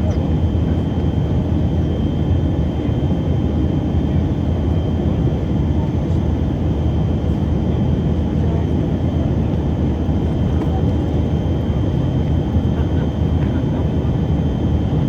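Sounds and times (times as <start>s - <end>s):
jet engines humming: 7.6s - 15.0s.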